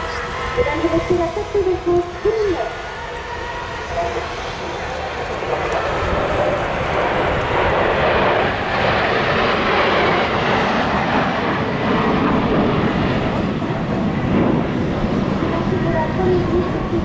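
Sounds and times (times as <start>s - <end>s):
jet roar in flight: 0.0s - 17.0s.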